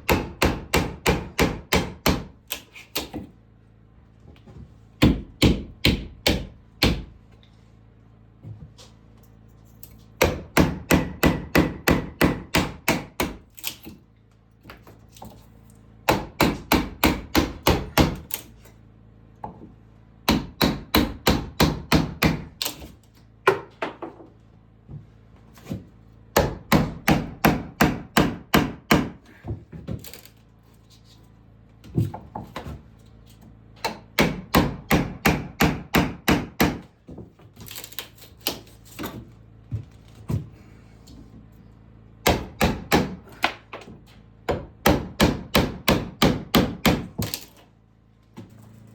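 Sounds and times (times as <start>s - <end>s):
hammer striking wood: 0.0s - 2.4s, 5.0s - 7.1s, 10.2s - 13.4s, 16.1s - 18.3s, 20.3s - 22.7s, 26.4s - 29.2s, 33.8s - 37.0s, 42.2s - 43.9s, 44.5s - 47.4s.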